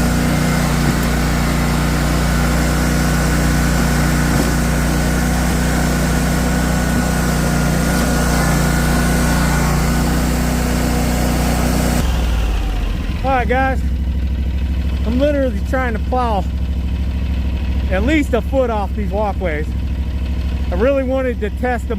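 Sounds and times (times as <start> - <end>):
small engine running: 0.0 - 21.9.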